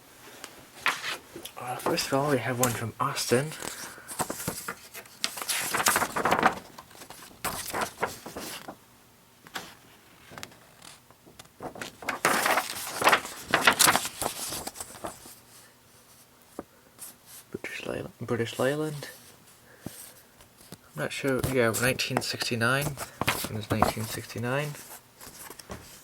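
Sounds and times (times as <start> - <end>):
paper pages rustling: 0.8 - 8.8, 9.5 - 17.2, 18.5 - 26.0.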